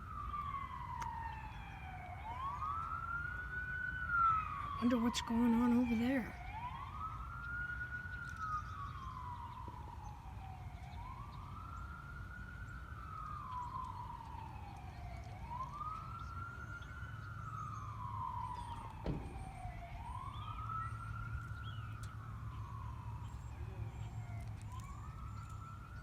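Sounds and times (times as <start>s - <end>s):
distant siren wailing: 0.0s - 26.0s.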